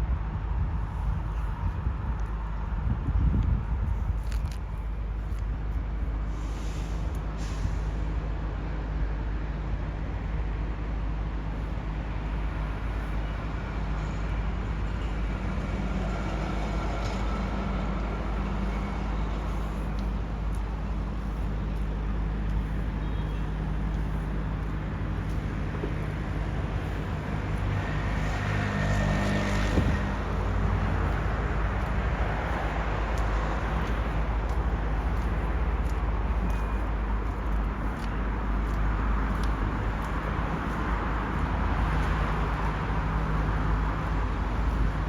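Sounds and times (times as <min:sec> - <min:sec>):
train rumbling: 0:15.0 - 0:45.0.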